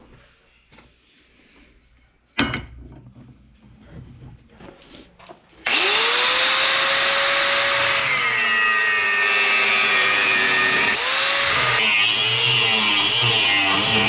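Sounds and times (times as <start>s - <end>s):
power tool motor whine: 5.6s - 14.0s.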